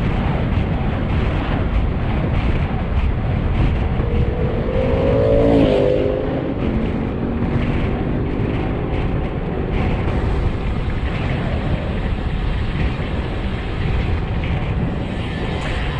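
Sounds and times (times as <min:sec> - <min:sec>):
wind rushing over microphone: 0:00.0 - 0:15.9
vehicle engine passing: 0:03.6 - 0:11.3.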